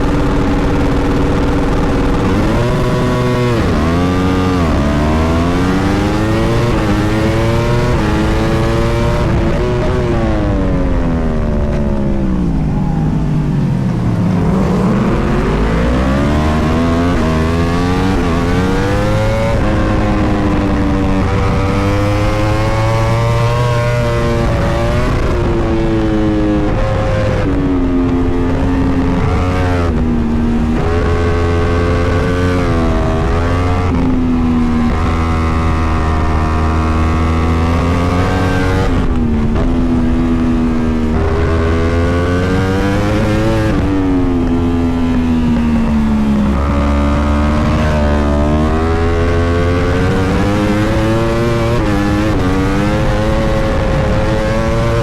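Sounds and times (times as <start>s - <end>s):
racing motorcycle engine revving: 0.0s - 55.0s.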